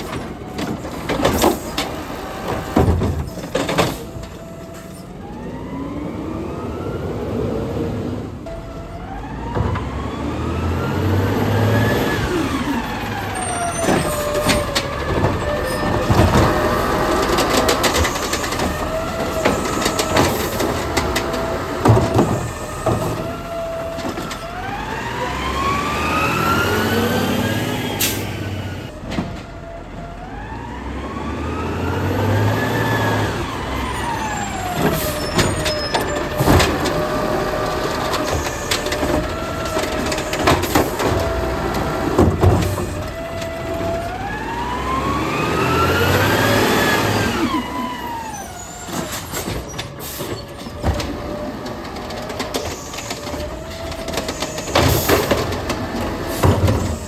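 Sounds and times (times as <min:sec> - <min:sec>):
clanks and bangs of cart: 0:00.0 - 0:05.1, 0:11.5 - 0:25.7, 0:32.9 - 0:57.0
garbage truck engine revving: 0:00.0 - 0:57.0.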